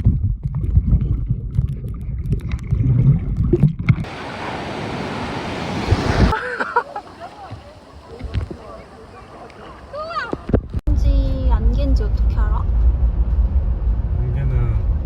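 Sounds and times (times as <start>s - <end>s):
wind rumbling on microphone: 0.0s - 6.4s
ocean surf rushing: 4.0s - 10.5s.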